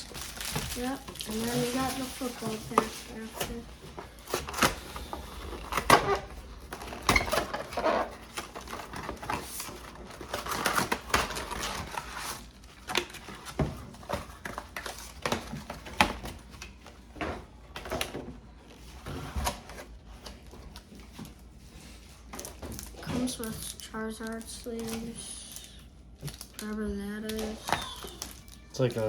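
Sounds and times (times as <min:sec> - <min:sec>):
packaging rustling: 0:00.0 - 0:29.0.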